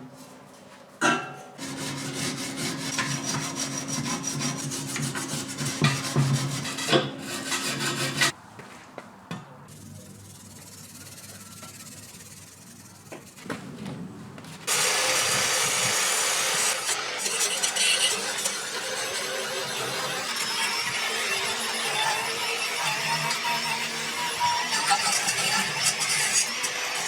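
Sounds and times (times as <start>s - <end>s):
rubbing and scraping: 1.6s - 8.4s.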